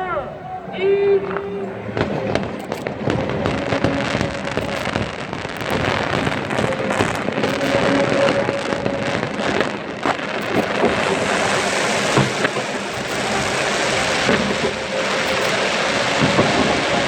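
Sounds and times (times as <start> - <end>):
fireworks bursting and crackling: 1.2 - 17.0.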